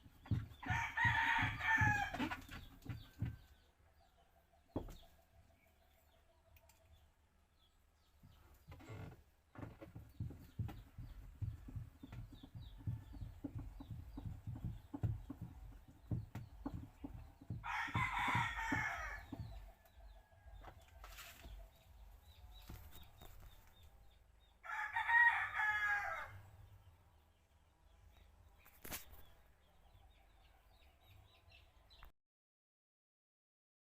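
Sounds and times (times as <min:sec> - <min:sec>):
dull knocks: 0:00.0 - 0:03.6, 0:08.2 - 0:23.6
rooster crowing: 0:00.6 - 0:02.3, 0:17.6 - 0:19.4, 0:24.6 - 0:26.4.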